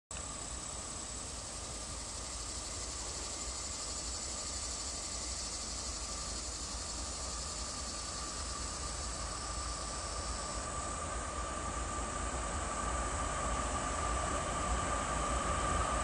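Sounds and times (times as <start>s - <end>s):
steady high hiss: 0.1s - 16.0s.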